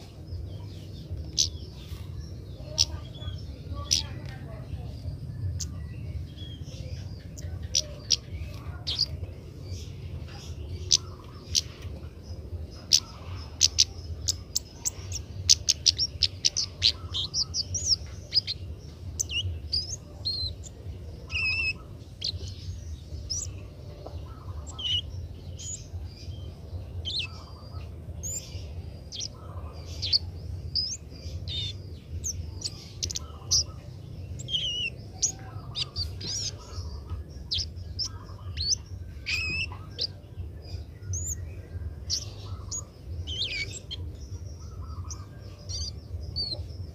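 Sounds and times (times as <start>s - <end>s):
low steady hum: 0.0s - 46.9s
bird chirping and whistling: 13.6s - 23.6s, 24.5s - 25.9s, 26.5s - 29.4s, 30.0s - 46.9s.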